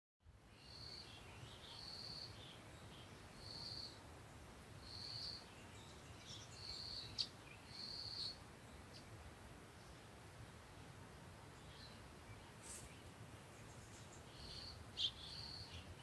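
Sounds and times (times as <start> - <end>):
soft bird chirps: 0.5 - 10.2, 11.5 - 16.0.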